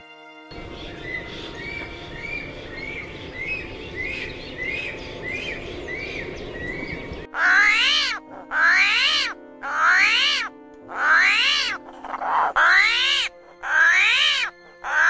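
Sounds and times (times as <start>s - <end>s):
outdoor background hiss: 0.5s - 7.3s
bird chirping: 0.5s - 8.1s.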